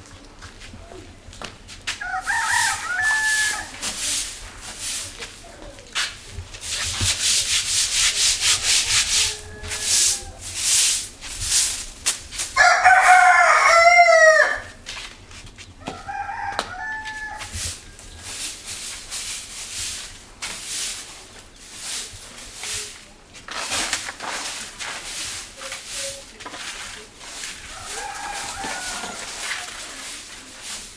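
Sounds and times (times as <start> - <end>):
broom sweeping: 1.7 - 30.9
rooster crowing: 2.0 - 3.8, 8.9 - 10.5, 12.6 - 14.8, 15.8 - 18.0, 27.7 - 30.0.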